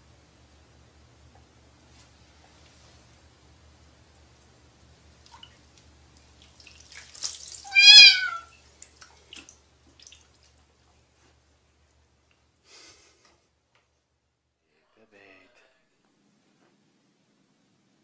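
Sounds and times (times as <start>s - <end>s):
water splashing in a basin: 5.2s - 11.1s
kitten meowing: 7.7s - 8.5s.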